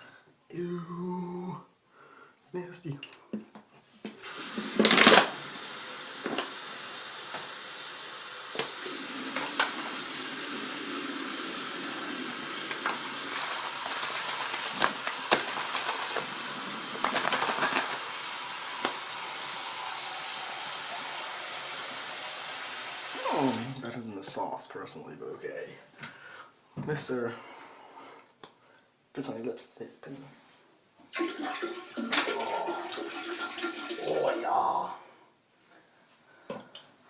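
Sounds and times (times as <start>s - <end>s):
tap water running: 4.1s - 24.0s, 31.1s - 34.9s.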